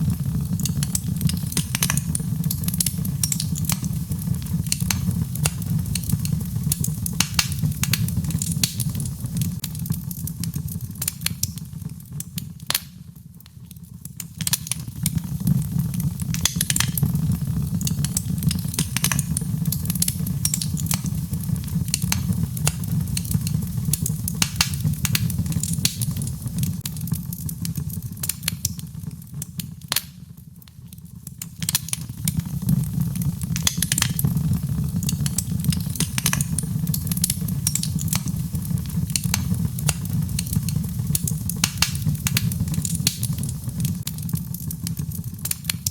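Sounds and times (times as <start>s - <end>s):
logs crackling and popping: 0.0s - 45.9s
low rumble of flames: 0.0s - 45.9s.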